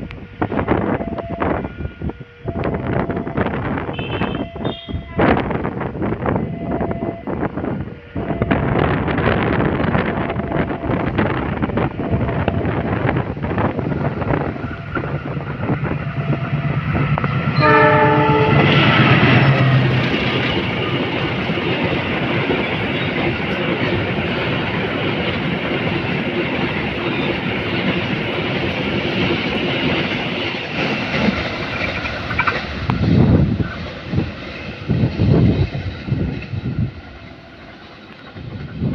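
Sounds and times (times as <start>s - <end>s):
train wheels clattering: 11.2s - 38.9s
loud low bursts: 11.9s - 22.3s.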